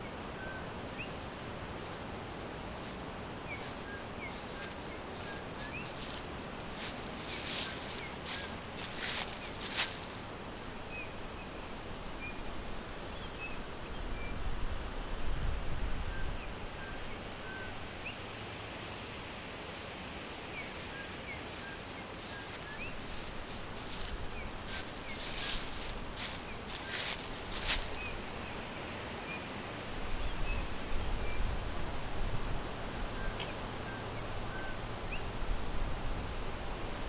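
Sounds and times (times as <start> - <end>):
crackly rustling: 0.0 - 10.6, 18.8 - 28.6
hiss of leaves and air: 0.0 - 11.0, 17.0 - 29.0.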